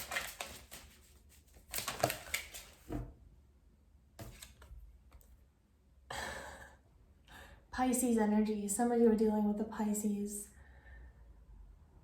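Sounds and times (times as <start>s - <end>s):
cards being shuffled: 0.0s - 3.0s.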